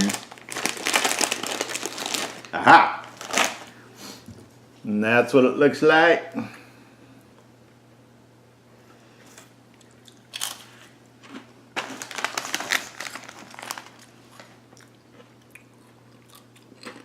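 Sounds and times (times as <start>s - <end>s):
chip being crunched: 0.0s - 3.7s, 10.1s - 10.7s, 11.3s - 14.5s.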